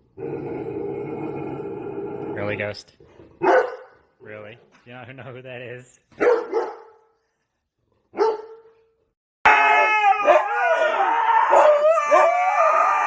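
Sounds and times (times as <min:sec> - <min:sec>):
dog barking: 0:03.4 - 0:04.0, 0:06.2 - 0:07.1, 0:08.1 - 0:08.8
dogs howling: 0:09.5 - 0:13.0.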